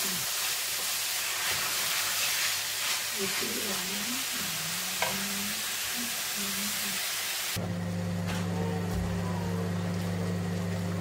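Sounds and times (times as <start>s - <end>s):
vegetables sizzling in a pan: 0.0s - 7.6s.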